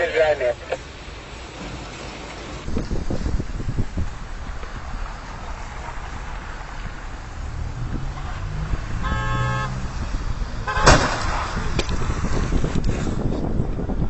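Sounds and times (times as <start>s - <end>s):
vehicle rumbling over road: 0.0s - 14.0s
car horn: 7.9s - 10.0s, 10.6s - 11.3s
sharp loud bang: 10.7s - 11.6s.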